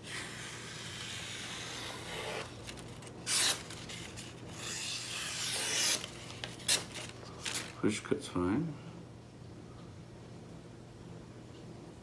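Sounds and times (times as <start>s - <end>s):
knife slicing paper: 0.0s - 7.8s.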